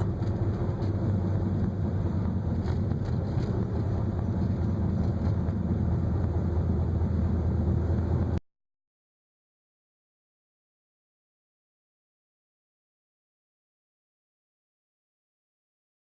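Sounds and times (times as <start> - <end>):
low rumbling noise: 0.0 - 8.4.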